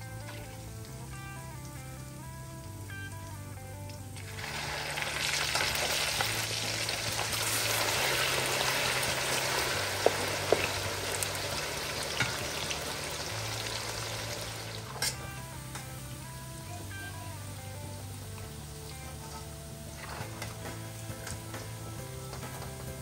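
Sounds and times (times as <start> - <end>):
meat frying in hot oil: 0.0 - 23.0.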